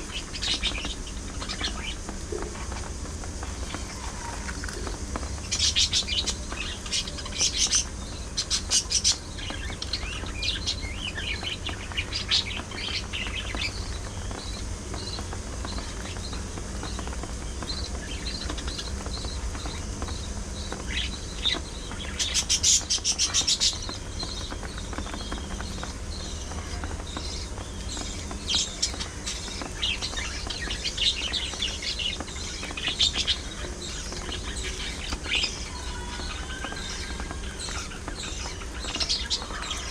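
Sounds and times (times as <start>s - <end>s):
budgerigars chirping: 17.7s - 39.9s.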